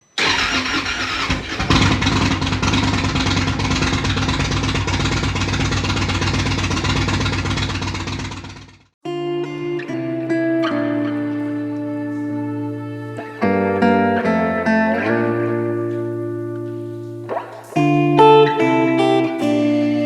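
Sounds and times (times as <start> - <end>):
motorcycle engine cranking and running: 0.2 - 9.0.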